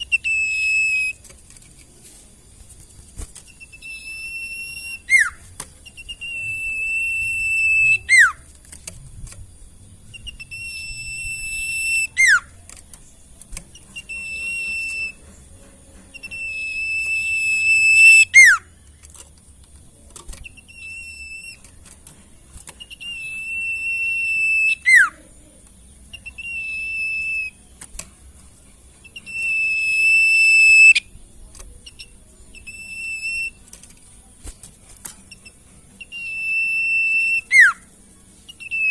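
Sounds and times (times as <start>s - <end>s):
songbird whistling: 0.0s - 1.3s, 3.4s - 8.5s, 10.1s - 13.0s, 13.7s - 15.5s, 16.1s - 18.7s, 20.4s - 21.8s, 22.7s - 25.2s, 26.1s - 27.8s, 29.0s - 31.2s, 31.8s - 33.7s, 35.3s - 38.9s
whistle sweeping down in pitch: 3.6s - 5.4s, 6.0s - 8.4s, 10.4s - 12.4s, 16.2s - 18.6s, 23.0s - 25.1s, 36.1s - 37.8s.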